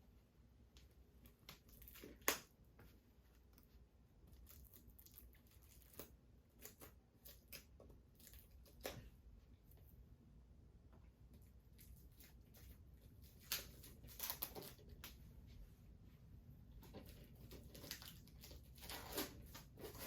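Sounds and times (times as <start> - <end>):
plastic wrap tearing and crinkling: 11.9 - 15.1, 17.0 - 20.0.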